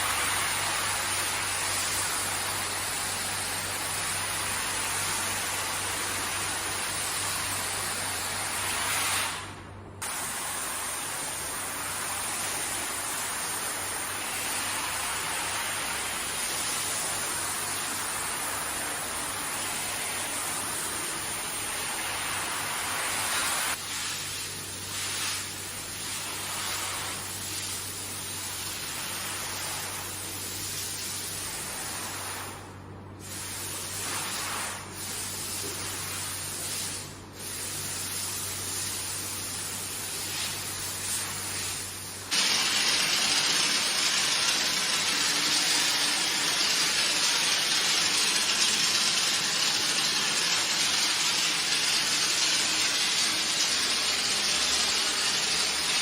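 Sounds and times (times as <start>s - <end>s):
pressure sprayer hissing: 37.5s - 56.0s.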